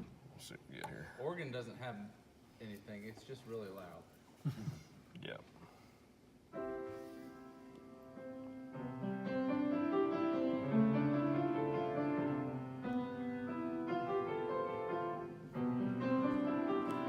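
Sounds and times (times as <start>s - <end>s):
keyboard playing slow chords: 6.6s - 17.0s.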